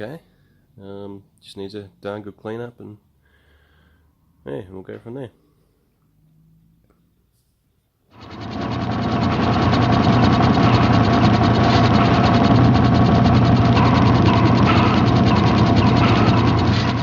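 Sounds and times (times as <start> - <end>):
rapid mechanical clatter: 8.1 - 17.0
constant low hum: 8.2 - 17.0.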